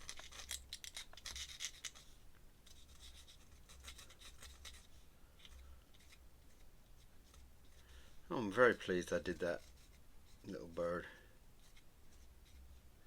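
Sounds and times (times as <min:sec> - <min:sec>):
pen scratching on paper: 0:02.7 - 0:04.9.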